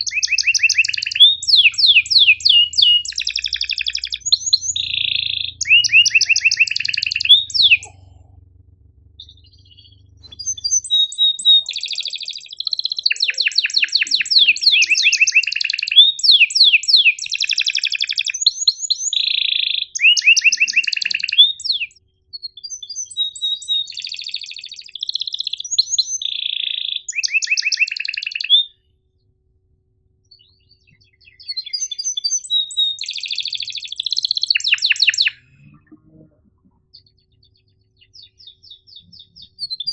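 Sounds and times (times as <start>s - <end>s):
faint low hum: 0.0s - 17.3s, 33.5s - 39.9s
canary singing trills: 0.0s - 28.8s, 30.3s - 39.9s.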